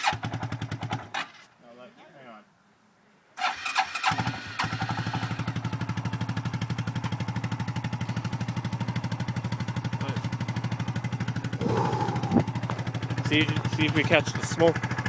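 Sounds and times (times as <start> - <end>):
engine starting and idling: 3.4 - 5.5.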